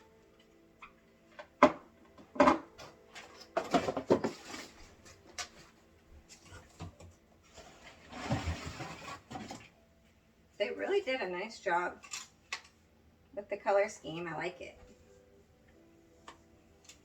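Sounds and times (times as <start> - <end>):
plastic parts clattering: 1.5 - 5.6.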